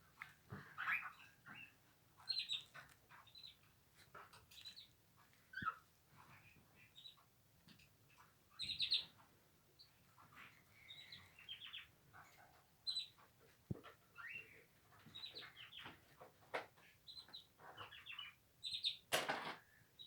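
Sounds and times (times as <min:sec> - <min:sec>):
cockatiels chirping: 0:00.6 - 0:03.6, 0:05.5 - 0:07.2, 0:08.6 - 0:09.2, 0:10.2 - 0:13.2, 0:13.8 - 0:19.0.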